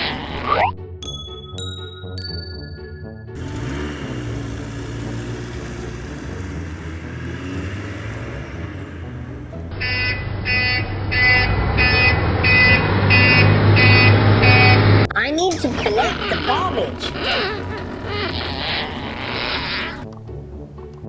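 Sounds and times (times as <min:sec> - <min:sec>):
garbage truck engine humming: 0:01.4 - 0:21.0
reversing alarm beeping: 0:09.8 - 0:15.0.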